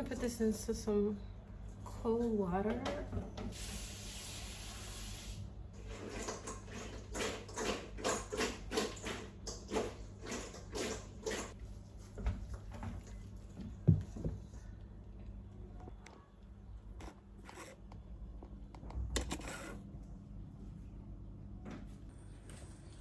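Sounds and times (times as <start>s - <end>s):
water running: 3.5s - 11.6s.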